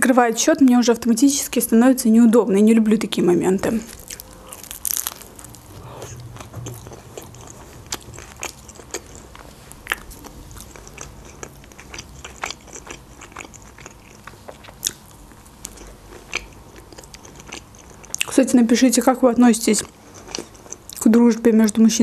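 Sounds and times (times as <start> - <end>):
person chewing: 3.9 - 18.3, 19.8 - 21.0.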